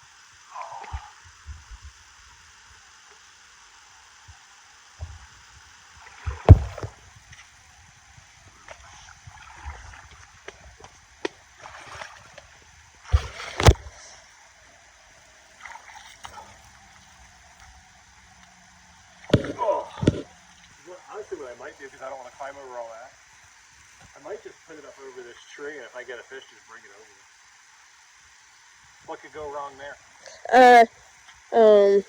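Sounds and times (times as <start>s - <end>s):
river water running: 0.0s - 32.0s
knocks and thumps: 5.0s - 5.3s, 6.2s - 7.1s, 13.1s - 13.9s, 19.3s - 20.4s.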